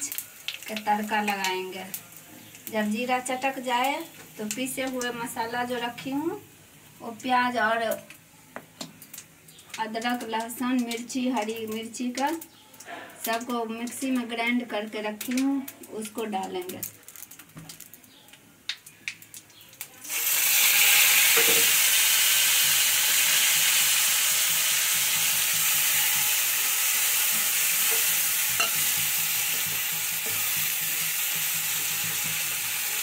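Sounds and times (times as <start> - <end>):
paste sizzling in hot oil: 20.0 - 33.0
spatula stirring: 27.1 - 33.0.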